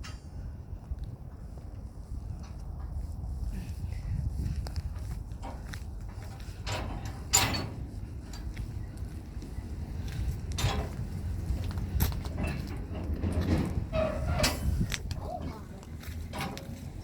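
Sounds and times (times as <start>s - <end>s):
metal creak: 6.6s - 8.5s, 10.5s - 17.0s
metal clunks: 12.1s - 17.0s.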